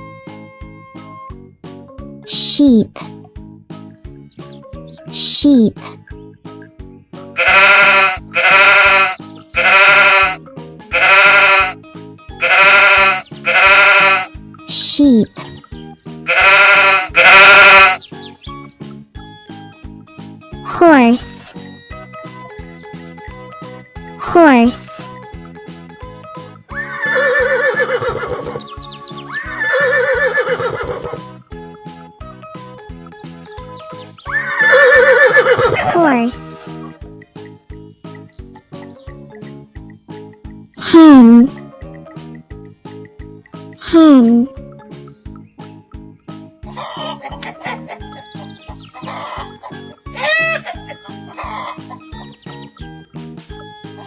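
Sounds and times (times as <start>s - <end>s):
background music with steady beat: 0.0s - 7.4s
light children's music with plucked notes: 0.0s - 8.4s, 13.1s - 27.7s, 31.2s - 40.8s, 41.4s - 54.0s
horse whinnying: 7.4s - 10.4s, 11.0s - 11.8s, 12.4s - 15.0s, 16.3s - 18.0s, 26.7s - 28.7s, 29.4s - 31.2s, 34.3s - 36.0s
sheep bleating: 7.4s - 11.8s, 12.4s - 15.1s, 16.3s - 18.0s.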